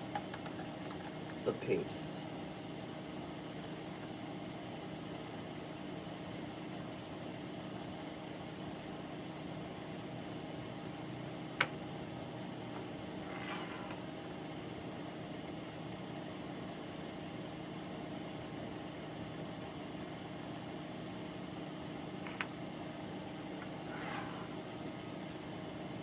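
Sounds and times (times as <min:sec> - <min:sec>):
low machine hum: 0:00.0 - 0:26.0.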